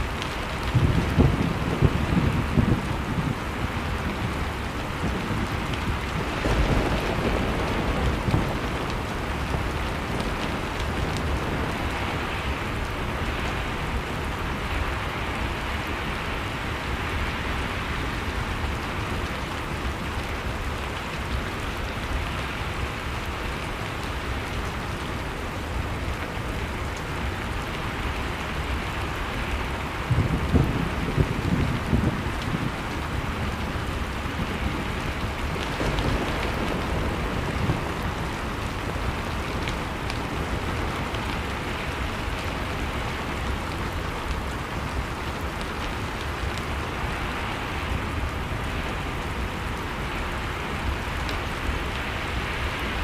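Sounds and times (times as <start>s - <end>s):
blizzard wind: 0.0s - 53.0s
faint wood fire crackle: 0.0s - 53.0s.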